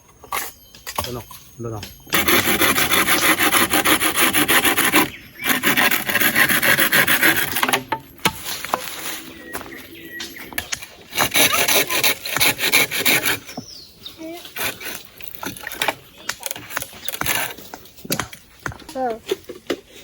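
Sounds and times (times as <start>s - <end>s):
saw cutting through wood: 2.1s - 17.6s.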